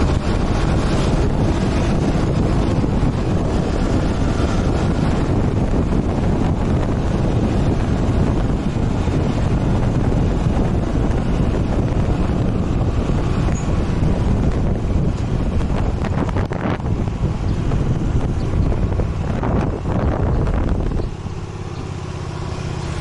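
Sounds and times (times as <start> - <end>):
wind rushing over microphone: 0.0 - 23.0.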